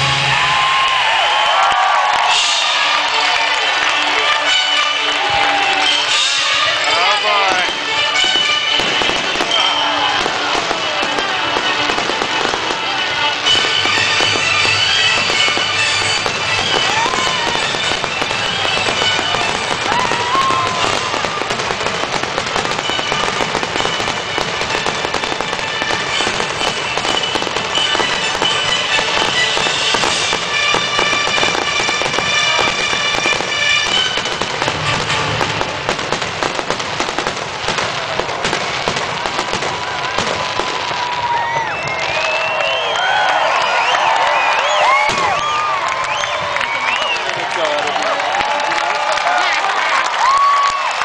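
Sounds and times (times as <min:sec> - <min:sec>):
music playing: 0:00.0 - 0:41.1
fireworks crackling and banging: 0:00.0 - 0:51.0.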